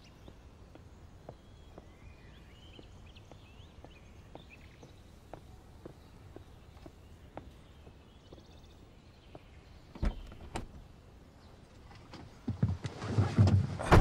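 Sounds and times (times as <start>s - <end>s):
rustling and thumps: 11.9s - 14.0s.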